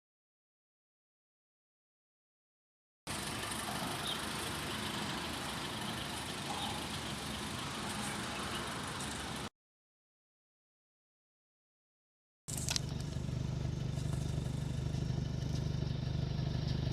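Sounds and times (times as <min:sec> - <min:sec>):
car engine idling: 0:03.1 - 0:09.5, 0:12.5 - 0:16.9.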